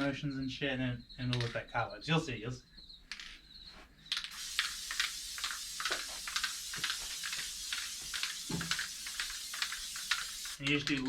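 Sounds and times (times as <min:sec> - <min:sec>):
aerosol can hissing and sputtering: 0:04.1 - 0:10.7.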